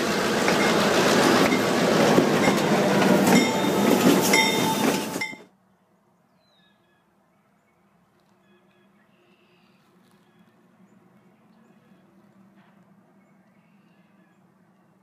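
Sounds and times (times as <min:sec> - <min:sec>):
diesel locomotive engines: 0:00.0 - 0:05.5
wheels clacking over rail joints: 0:00.0 - 0:05.5
crossing bell dinging: 0:00.5 - 0:01.8, 0:02.4 - 0:05.5.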